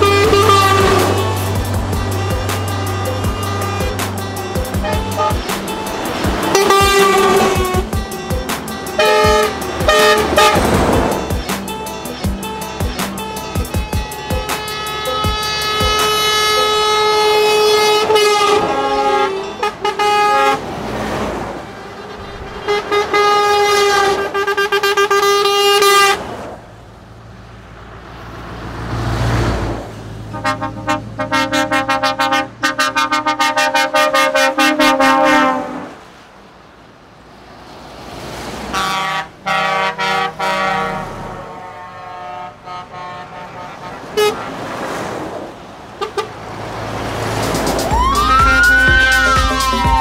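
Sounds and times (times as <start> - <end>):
truck horn toots: 0.0 - 20.9, 21.6 - 26.3, 30.2 - 36.0, 38.7 - 44.9, 46.0 - 46.6
truck horn blasts: 0.0 - 26.3, 30.2 - 36.0, 38.7 - 44.8, 46.0 - 46.6
road noise: 0.0 - 50.0
truck engine: 0.0 - 50.0.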